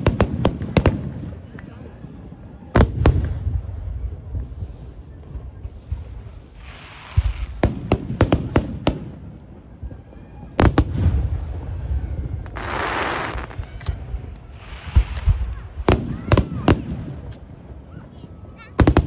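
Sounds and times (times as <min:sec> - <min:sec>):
fireworks bursting with bangs: 0:00.0 - 0:19.0
hissing crackle: 0:04.1 - 0:10.1, 0:10.8 - 0:19.0.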